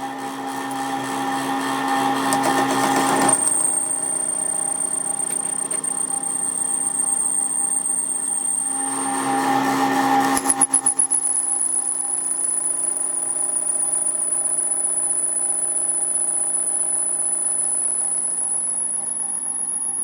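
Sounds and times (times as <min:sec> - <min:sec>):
workshop machine humming: 0:00.0 - 0:11.0.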